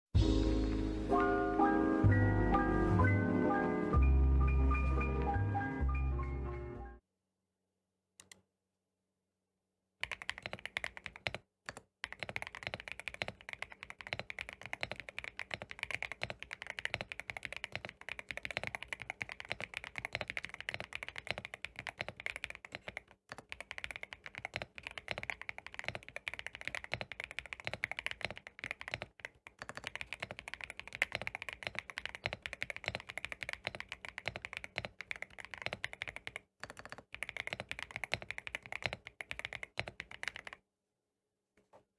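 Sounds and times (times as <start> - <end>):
fast typing on mechanical keyboard: 10.0 - 40.6.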